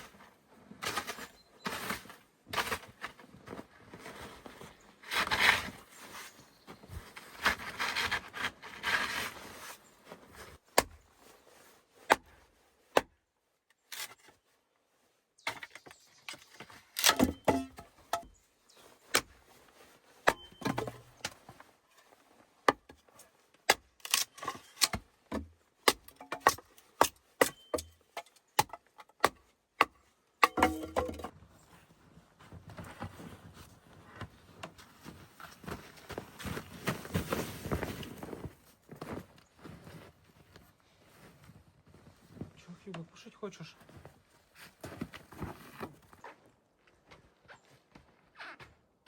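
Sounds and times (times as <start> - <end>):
knocks and clatters of handling: 15.4 - 18.4, 20.2 - 31.4.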